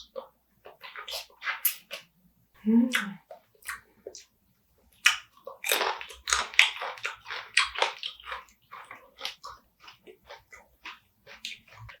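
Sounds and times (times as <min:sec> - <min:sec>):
mouth smacks: 0:02.7 - 0:04.3
biting and crunching crab: 0:05.0 - 0:12.0.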